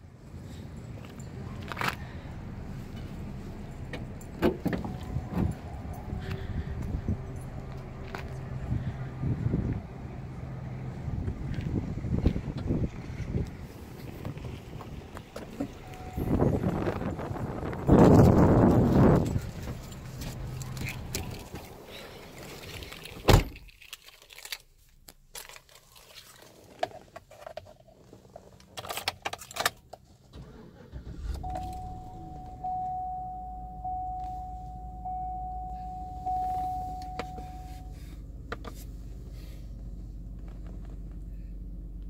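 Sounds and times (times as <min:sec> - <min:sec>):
car engine starting and idling: 0:00.2 - 0:23.6, 0:28.0 - 0:42.0
warning chime: 0:04.9 - 0:06.5, 0:15.8 - 0:17.2, 0:31.4 - 0:38.0.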